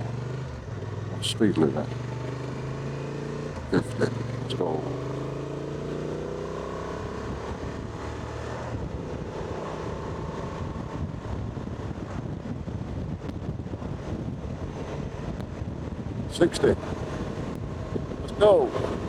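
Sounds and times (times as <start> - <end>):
motorcycle engine accelerating: 0.0 - 19.0
wind rushing over microphone: 6.9 - 19.0.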